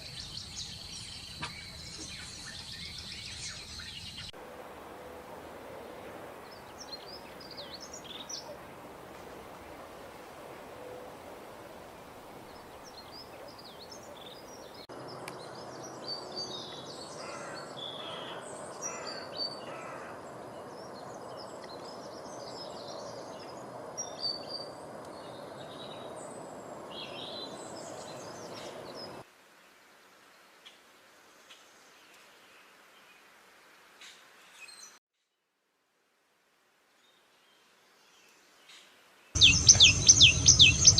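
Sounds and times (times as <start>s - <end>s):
small birds chirping: 0.0s - 4.4s, 38.2s - 40.9s
background hiss: 26.2s - 35.0s.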